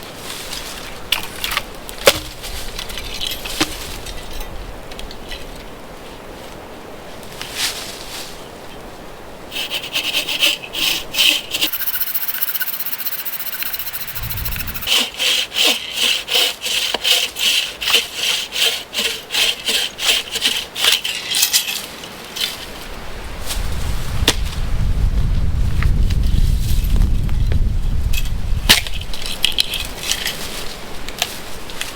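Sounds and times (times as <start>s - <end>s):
hand saw cutting wood: 9.5s - 21.3s.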